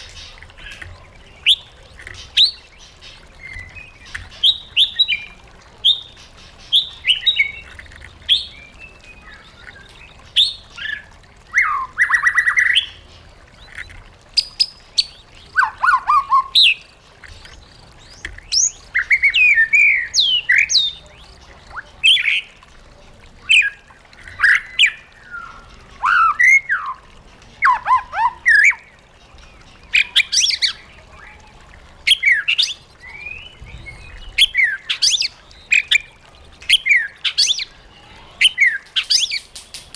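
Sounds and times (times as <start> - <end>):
songbird singing whistled phrases: 32.1 - 37.7.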